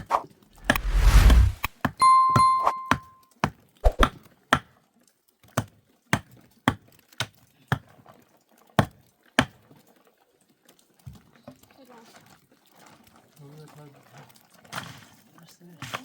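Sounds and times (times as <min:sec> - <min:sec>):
ringing tone: 0:02.0 - 0:03.2.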